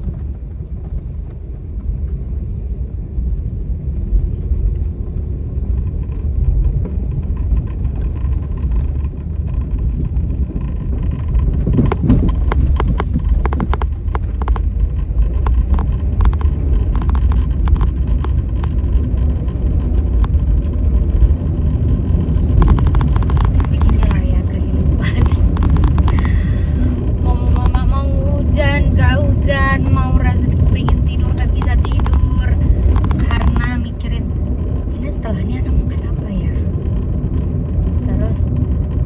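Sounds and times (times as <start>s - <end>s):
vehicle low rumble: 0.0s - 39.0s
sharp clicks and ticks: 5.4s - 39.0s.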